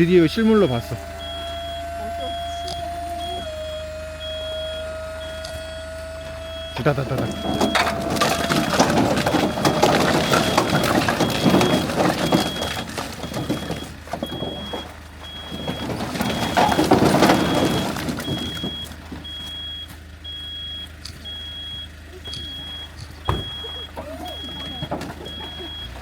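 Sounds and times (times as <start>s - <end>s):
truck reversing beeper: 0.0s - 26.0s
firewood logs clattering: 6.5s - 26.0s.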